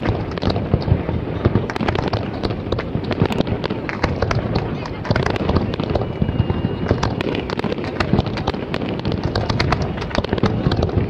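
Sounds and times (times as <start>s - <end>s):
fireworks popping and crackling: 0.0s - 11.0s.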